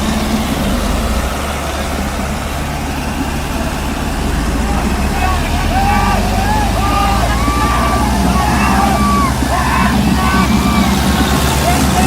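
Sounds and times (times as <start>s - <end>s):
tractor diesel engines under load: 0.0s - 12.0s.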